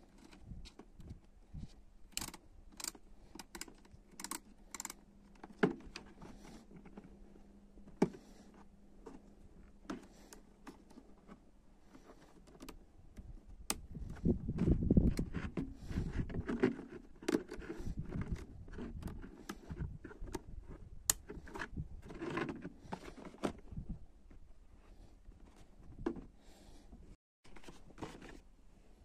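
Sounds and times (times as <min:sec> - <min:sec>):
rustling noise: 0:27.0 - 0:29.0.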